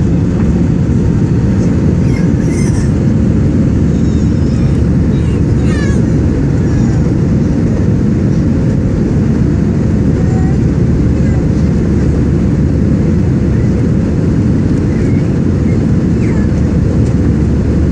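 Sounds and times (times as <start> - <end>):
jet engine cabin noise: 0.0 - 17.9.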